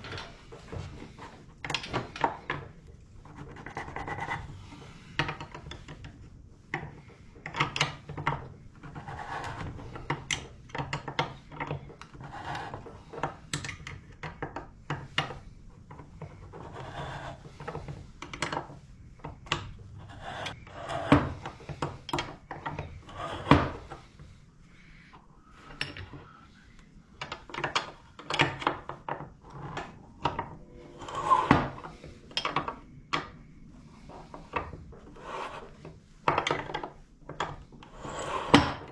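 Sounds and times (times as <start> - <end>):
tools clicking and knocking on metal: 5.2 - 16.6, 17.5 - 24.1, 25.7 - 26.3, 27.2 - 30.6, 31.5 - 33.4, 36.2 - 38.9.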